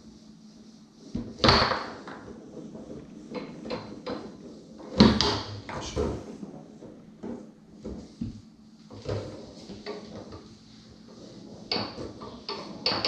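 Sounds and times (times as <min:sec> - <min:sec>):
foosball ball knocking: 0:01.2 - 0:13.0.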